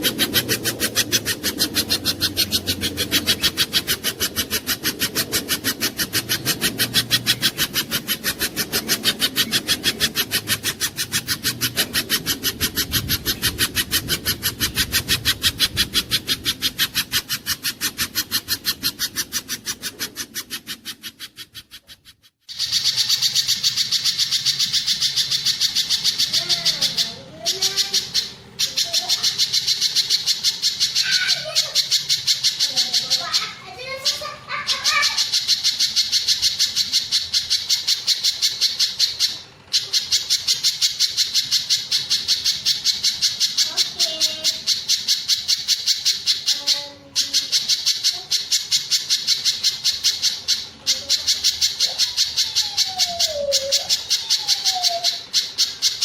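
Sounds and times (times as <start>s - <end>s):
bird rapid repeated chirping: 0.0s - 56.0s.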